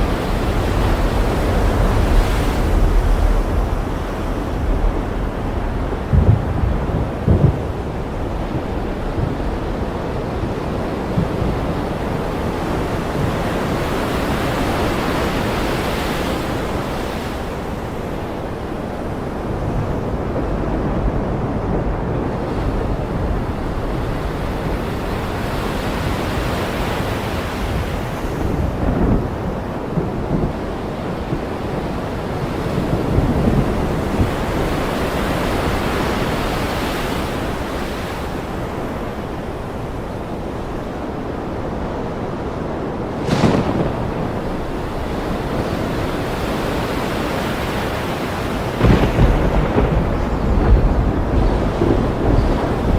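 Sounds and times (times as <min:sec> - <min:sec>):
low rumbles of thunder: 0:00.0 - 0:13.9, 0:27.7 - 0:35.4, 0:43.1 - 0:46.3, 0:48.6 - 0:52.9
ocean surf washing in: 0:00.0 - 0:52.9.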